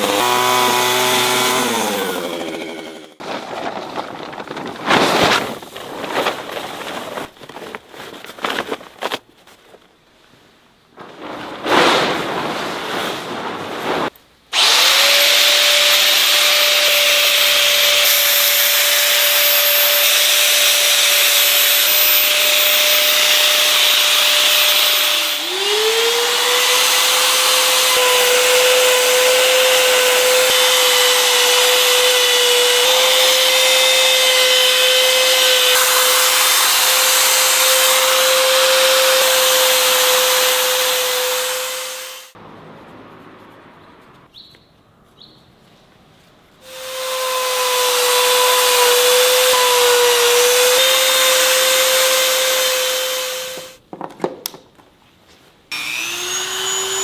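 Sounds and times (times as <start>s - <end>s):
power tool whining on wood: 0.0s - 3.2s, 14.6s - 42.4s, 46.6s - 53.8s, 55.7s - 57.0s.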